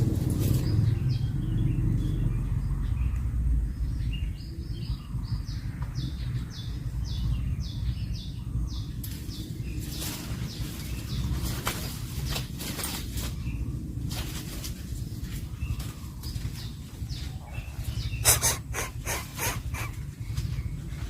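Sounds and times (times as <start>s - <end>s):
bird chirping: 0.0s - 14.0s, 14.7s - 21.0s
low background rumble: 0.0s - 21.0s
short scratchy sounds: 18.2s - 19.9s.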